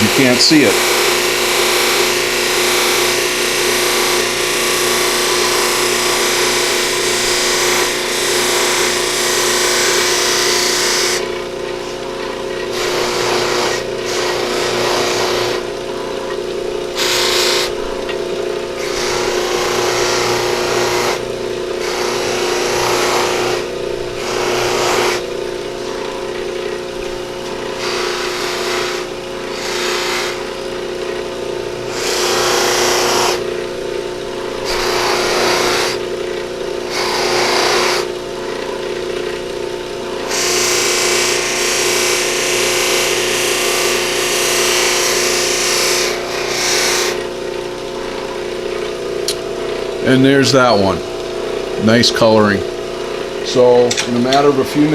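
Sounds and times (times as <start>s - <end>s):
buffing wheel motor humming: 0.0s - 54.9s
hissing friction on buffing wheel: 17.0s - 17.7s.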